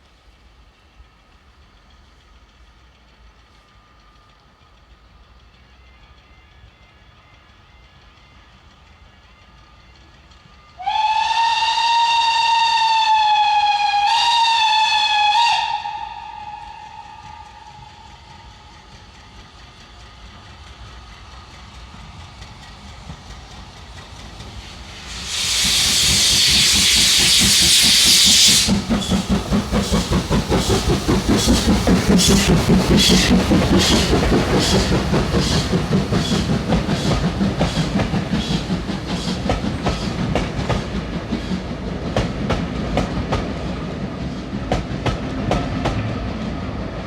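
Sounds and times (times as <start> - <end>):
steam locomotive whistle: 10.7 - 18.6, 25.0 - 30.1
steam hissing: 10.8 - 45.0
locomotive exhaust beat: 10.8 - 46.1.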